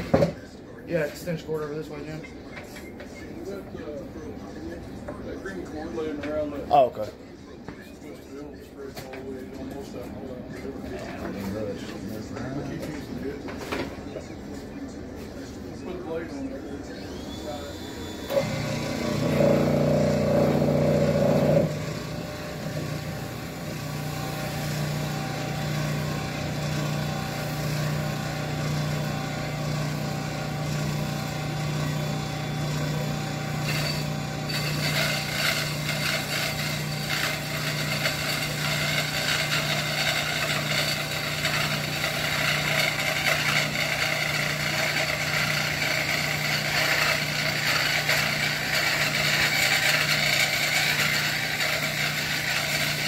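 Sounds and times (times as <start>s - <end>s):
power tool motor humming: 17.0s - 53.0s
grinding on steel blade: 18.3s - 53.0s.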